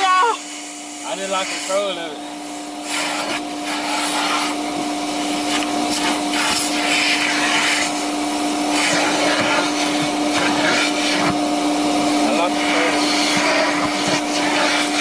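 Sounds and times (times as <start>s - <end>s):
rushing air of vacuum nozzle: 0.0s - 15.0s
vacuum cleaner whine: 0.0s - 15.0s.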